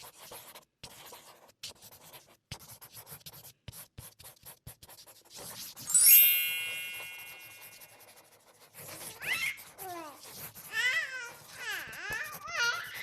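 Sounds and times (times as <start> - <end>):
pencil scratching on paper: 0.0 - 13.0
bright chime: 5.9 - 8.1.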